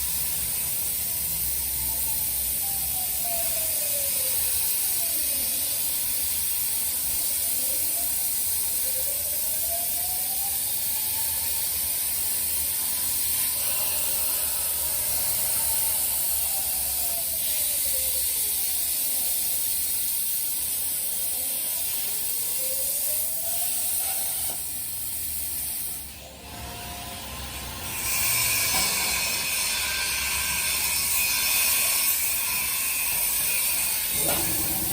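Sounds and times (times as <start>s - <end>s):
plasma arc hissing: 0.0s - 34.9s
drive motors whining: 34.1s - 34.9s.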